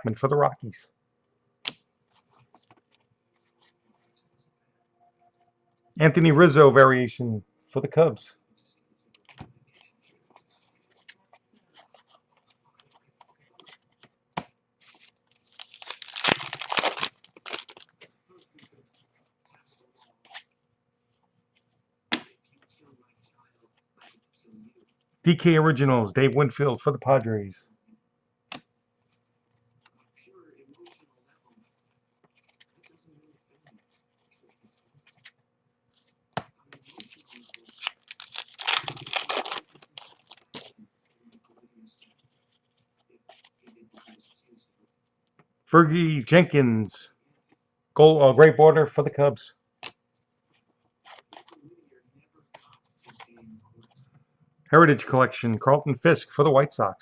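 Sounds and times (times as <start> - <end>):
wrapper being torn open: 15.4 - 17.9, 36.9 - 40.7.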